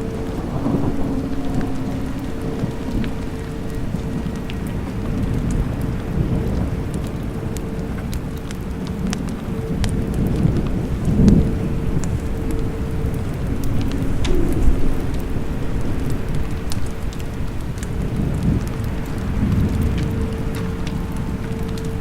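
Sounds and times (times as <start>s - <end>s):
low rolling thunder: 0.0s - 22.0s
steady rain: 0.0s - 22.0s
water drips ticking: 0.0s - 22.0s.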